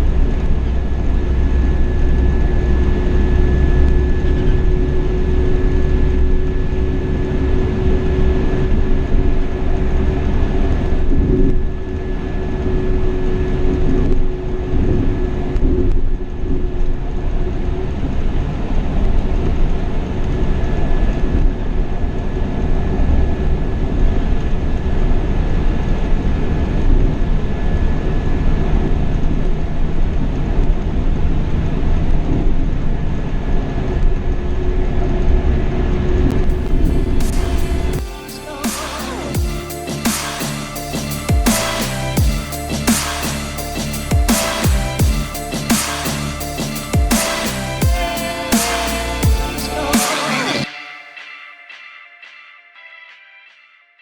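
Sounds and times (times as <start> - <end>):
diesel engine drone: 0.0 - 50.7
road rumble: 0.0 - 50.7
thin high whine: 36.3 - 53.1.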